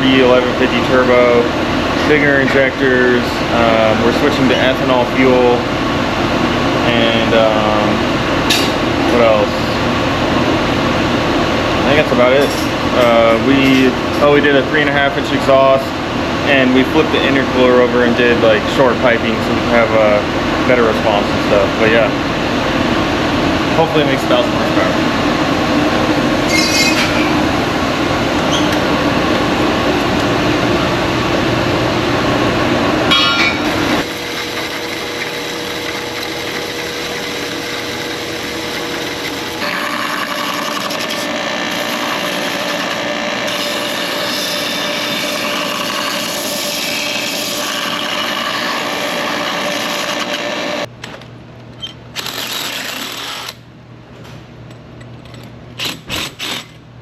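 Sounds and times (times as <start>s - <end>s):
machine running rapidly: 33.6s - 50.9s.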